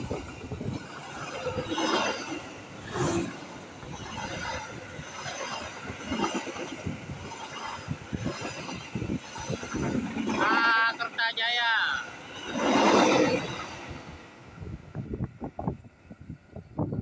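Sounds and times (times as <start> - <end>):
train wheels clattering on rails: 0.0 - 14.5.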